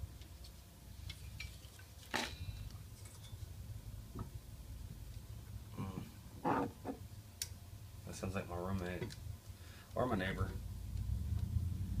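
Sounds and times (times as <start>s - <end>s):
steady low rumble: 9.2s - 12.0s.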